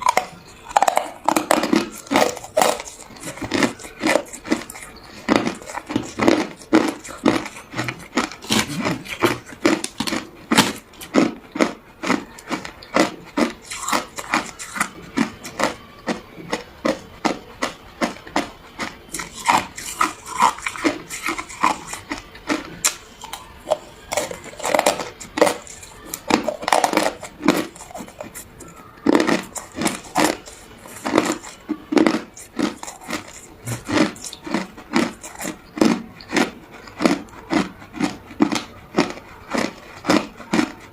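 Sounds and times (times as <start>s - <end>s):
person crunching ice: 0.0s - 40.9s.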